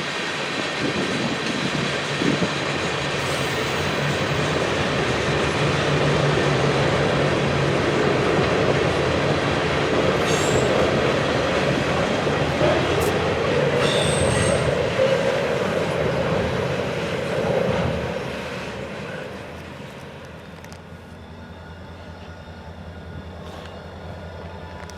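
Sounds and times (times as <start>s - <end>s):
train wheels rumbling on rail: 0.0s - 24.9s
high-pitched wheel squeals: 10.2s - 11.1s, 13.8s - 14.8s.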